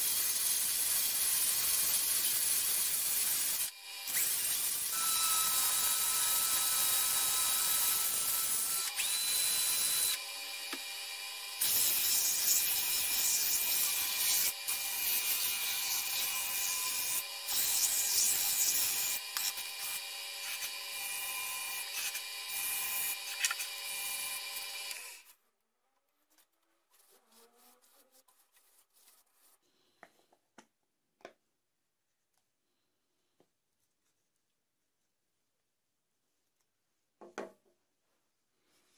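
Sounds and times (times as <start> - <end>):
wood lathe motor whine: 4.9 - 11.7, 19.1 - 25.2.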